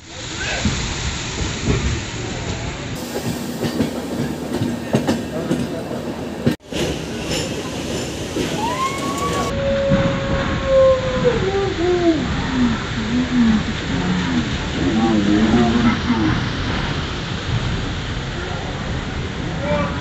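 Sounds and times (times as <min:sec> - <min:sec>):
train wheels clattering on rails: 0:00.6 - 0:10.8.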